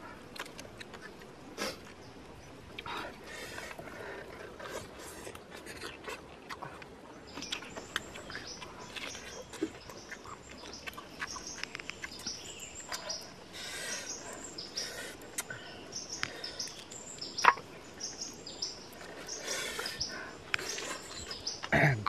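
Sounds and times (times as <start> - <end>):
wet chewing and smacking: 0.0 - 13.6, 14.2 - 21.7
birds chirping: 0.0 - 22.0.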